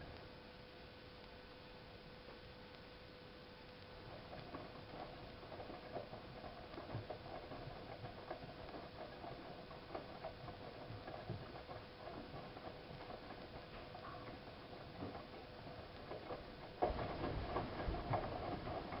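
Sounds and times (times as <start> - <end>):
washing machine hum: 3.2 - 19.0
wet laundry tumbling in drum: 4.0 - 19.0.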